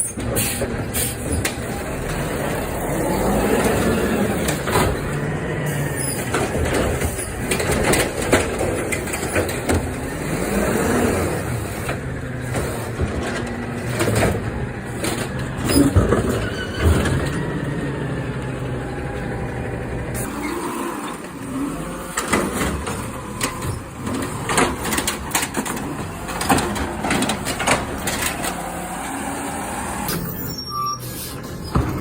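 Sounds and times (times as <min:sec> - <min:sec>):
garbage truck engine running: 0:00.0 - 0:32.0
sharp knocks and clanks: 0:06.1 - 0:10.0, 0:22.1 - 0:29.0.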